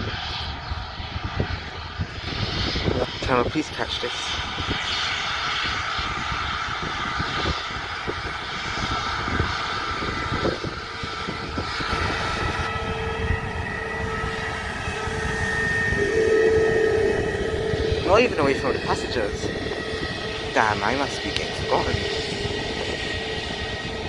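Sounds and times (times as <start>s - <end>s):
jet engines roaring: 0.0s - 24.0s
held tone: 11.8s - 24.0s.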